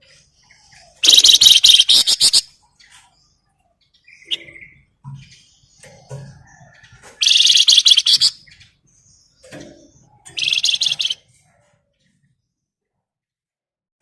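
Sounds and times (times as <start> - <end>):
songbird rattling trill: 1.0 - 2.5, 6.0 - 8.6, 10.2 - 11.2.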